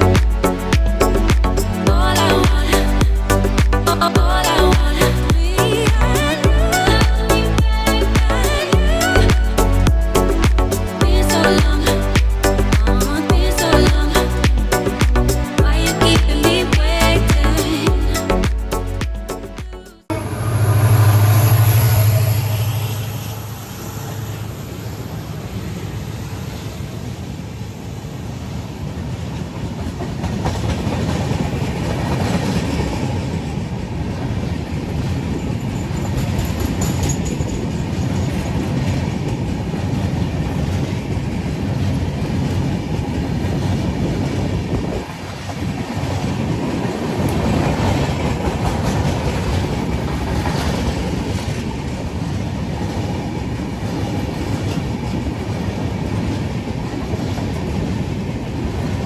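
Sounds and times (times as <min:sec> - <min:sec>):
clickety-clack over rail joints: 0:28.8 - 0:59.0
train wheels rumbling: 0:28.8 - 0:59.0.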